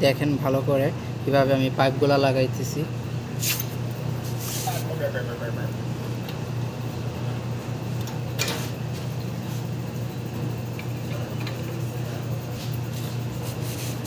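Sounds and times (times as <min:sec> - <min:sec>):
steady low hum: 0:00.0 - 0:14.0
tools scraping: 0:03.4 - 0:04.8.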